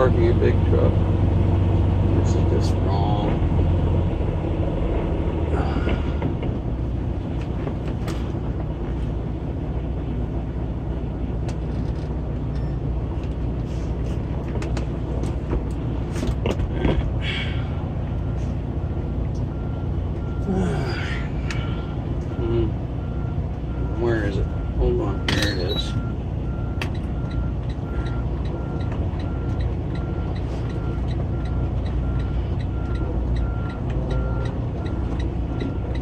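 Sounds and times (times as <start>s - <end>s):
truck diesel engine running: 0.0s - 36.0s
reversing alarm beeping: 21.6s - 36.0s.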